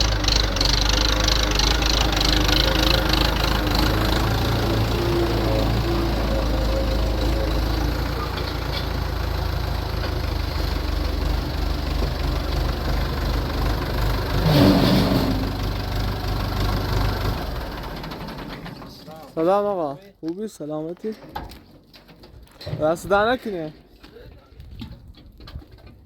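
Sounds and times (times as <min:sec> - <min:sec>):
tractor engine idling: 0:00.0 - 0:19.6.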